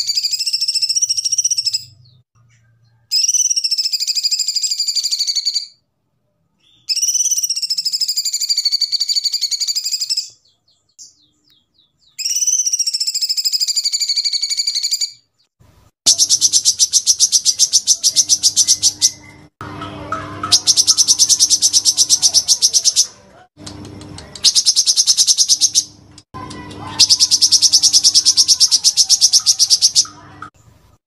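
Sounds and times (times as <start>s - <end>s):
bird rapid pulsing trill: 0.0s - 1.9s, 12.2s - 15.2s, 16.1s - 23.1s, 24.4s - 26.0s, 26.8s - 30.5s
bird rattling trill: 16.1s - 19.3s, 20.4s - 23.1s, 24.4s - 25.9s, 26.8s - 30.2s
low hum: 18.3s - 22.5s.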